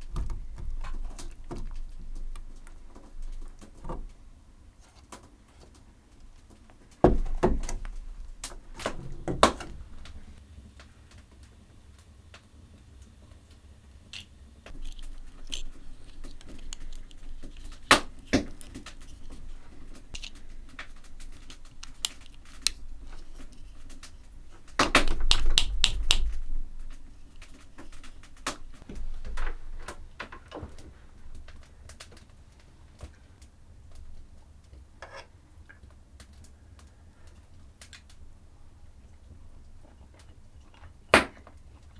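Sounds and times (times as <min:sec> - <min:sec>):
sharp clicks and knocks: 0:00.0 - 0:04.2, 0:06.4 - 0:10.4, 0:14.2 - 0:30.9.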